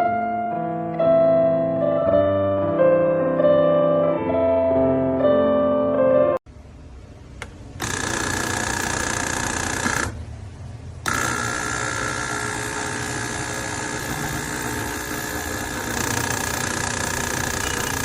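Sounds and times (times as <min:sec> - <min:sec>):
espresso machine pump running: 0:07.8 - 0:10.2, 0:11.0 - 0:18.0.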